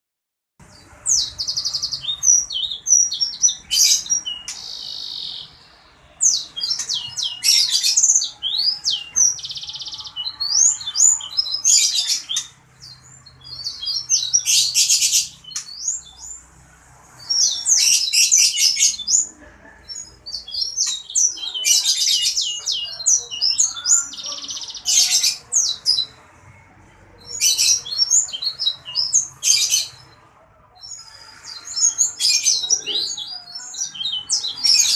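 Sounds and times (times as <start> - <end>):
songbird singing: 0.6 - 34.9.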